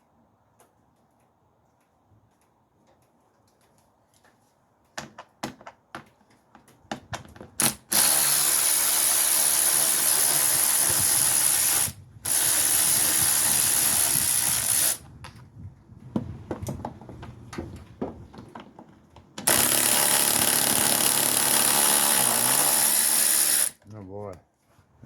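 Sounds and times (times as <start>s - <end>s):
pneumatic air ratchet: 7.6s - 15.0s, 19.4s - 23.8s.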